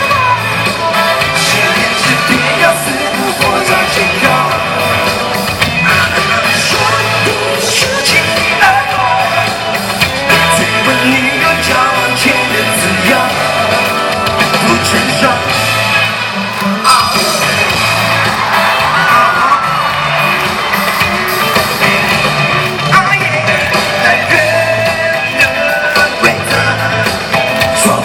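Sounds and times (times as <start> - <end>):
person singing and shouting: 0.0 - 15.7, 16.6 - 18.0
live pop-rock band: 0.0 - 28.0.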